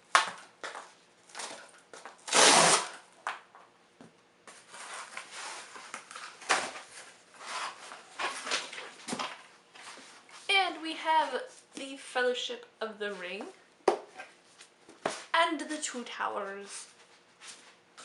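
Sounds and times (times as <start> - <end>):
cardboard mailer ripping open: 2.2 - 3.0.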